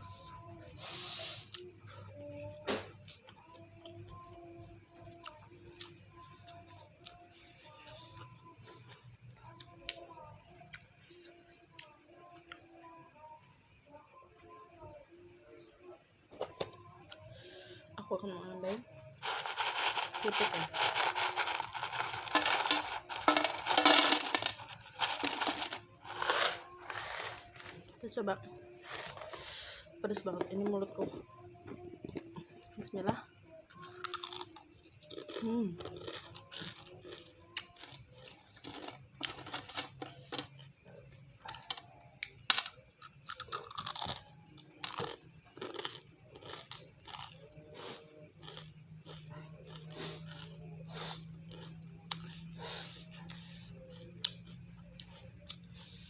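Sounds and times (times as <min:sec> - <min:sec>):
tableware clinking and clattering: 0:20.8 - 0:27.4
chewing crunchy greens: 0:33.8 - 0:39.5, 0:43.1 - 0:56.0.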